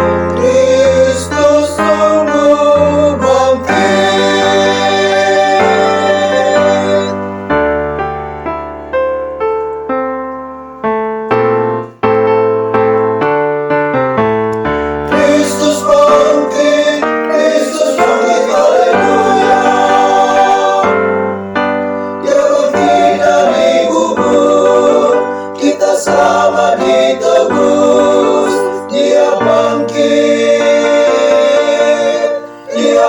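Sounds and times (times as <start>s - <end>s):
choir singing: 0.0s - 7.3s, 15.1s - 33.0s
piano chords: 0.0s - 33.0s.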